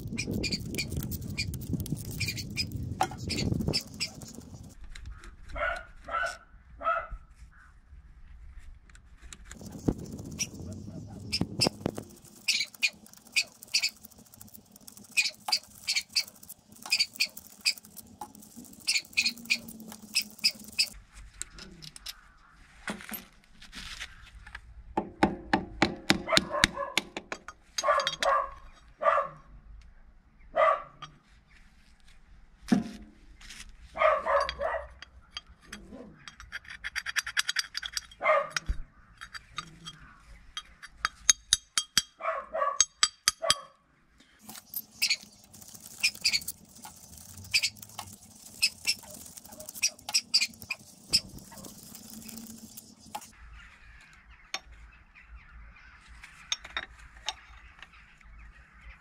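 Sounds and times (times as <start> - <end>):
steady hiss: 9.6 - 21.0, 44.4 - 53.4.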